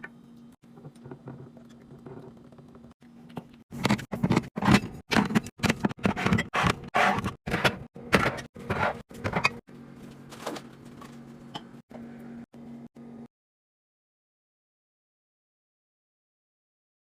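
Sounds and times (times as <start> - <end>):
containers and drawers handled: 0.7 - 11.7.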